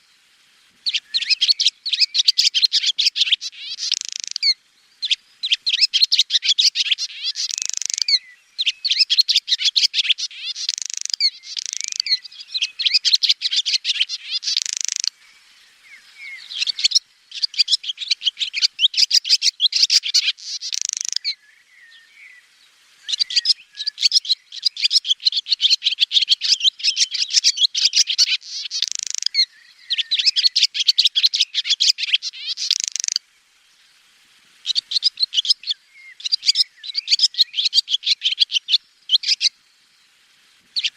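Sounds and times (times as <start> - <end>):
swallow twittering: 0.8 - 22.3, 23.1 - 33.2, 34.6 - 39.6.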